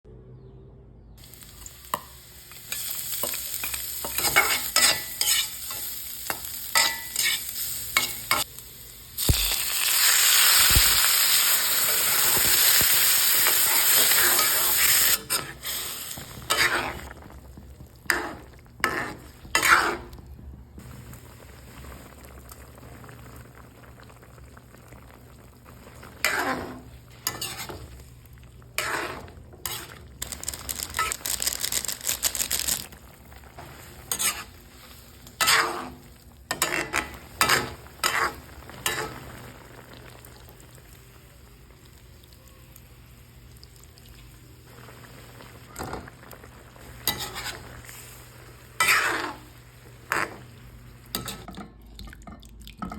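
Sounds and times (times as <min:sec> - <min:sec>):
food sizzling in a frying pan: 0:01.2 - 0:20.2, 0:20.8 - 0:51.5
utensil scraping a pan: 0:03.6 - 0:05.8, 0:06.8 - 0:08.4, 0:13.6 - 0:17.1, 0:18.0 - 0:20.2, 0:26.2 - 0:28.0, 0:28.8 - 0:30.0, 0:33.6 - 0:39.2, 0:47.0 - 0:48.1, 0:48.8 - 0:49.5.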